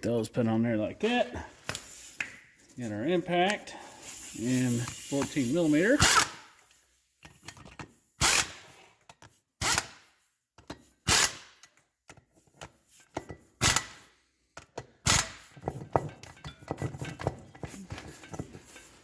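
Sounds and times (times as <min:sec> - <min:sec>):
impact wrench bursts: 0:04.0 - 0:06.6, 0:08.2 - 0:08.9, 0:09.6 - 0:11.7, 0:12.6 - 0:14.1, 0:14.8 - 0:17.2.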